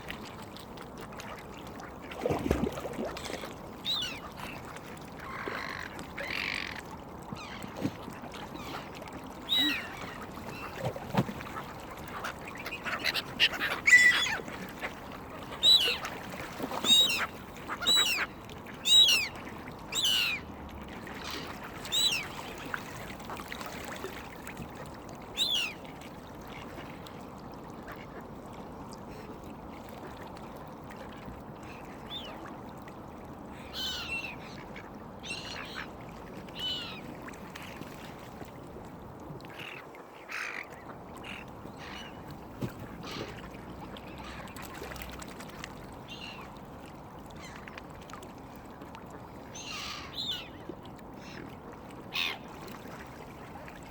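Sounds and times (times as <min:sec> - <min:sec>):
waterbirds calling harshly: 0:03.7 - 0:20.5, 0:21.2 - 0:23.7, 0:25.3 - 0:25.9, 0:33.5 - 0:38.0, 0:39.4 - 0:45.2, 0:46.0 - 0:46.6, 0:49.5 - 0:51.5, 0:52.1 - 0:52.6.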